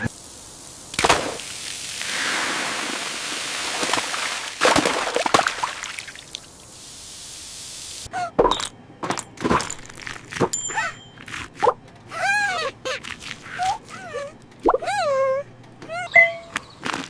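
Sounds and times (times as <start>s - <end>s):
cartoon clicks pops and squeaky blips: 14.6s - 15.0s.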